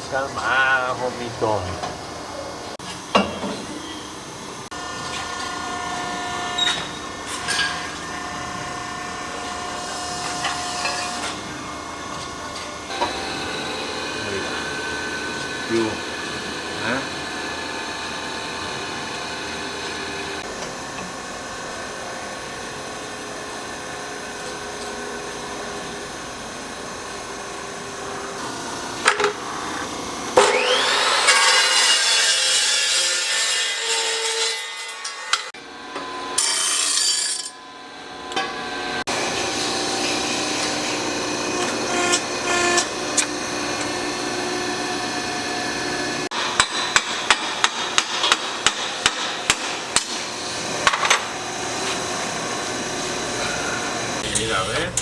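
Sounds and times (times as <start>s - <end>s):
motor hum: 0.0s - 31.8s, 37.5s - 47.3s, 49.4s - 55.0s
tool spinning up whine: 3.6s - 31.8s, 35.5s - 47.3s, 49.4s - 54.6s
tool rasping on metal: 41.5s - 43.3s.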